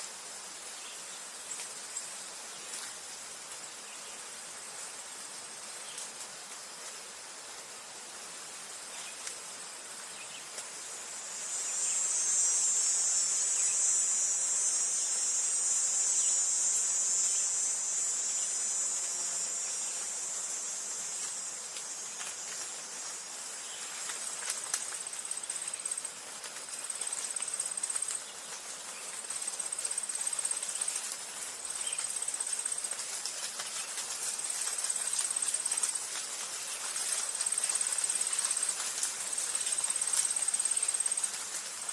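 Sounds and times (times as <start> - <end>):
high-pitched insect chorus: 0.0 - 41.9
insect trilling: 11.1 - 41.9.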